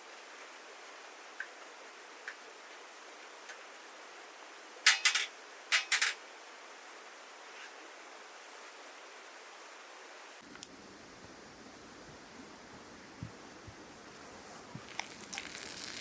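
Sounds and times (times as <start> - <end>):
steady hiss: 0.0 - 16.0
metal utensils clattering: 4.9 - 6.2.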